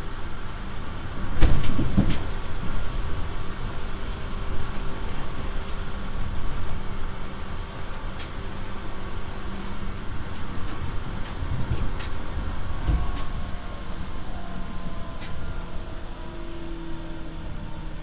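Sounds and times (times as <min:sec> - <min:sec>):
train car rumble and hum: 0:00.0 - 0:18.0.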